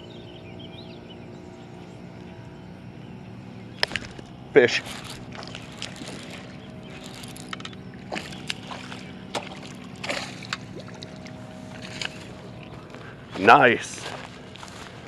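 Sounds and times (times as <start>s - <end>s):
steady low hum: 0.0s - 15.0s
fish splashing at the surface: 4.8s - 12.2s
small sharp clicks: 7.1s - 8.7s.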